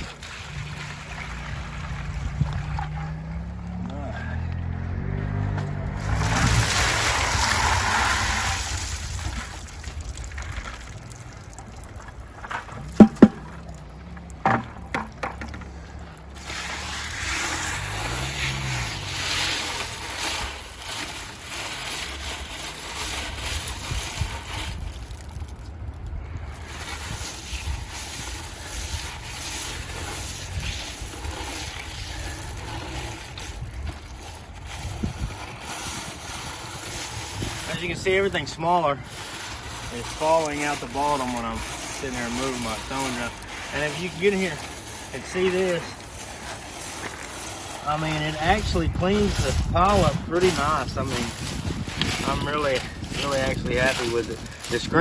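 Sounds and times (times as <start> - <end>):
gravel and water sloshing in sifter: 0.0 - 55.0
wind on microphone: 1.5 - 3.1, 5.9 - 10.9, 23.2 - 38.5, 48.0 - 55.0
sharp knocks: 12.8 - 13.7.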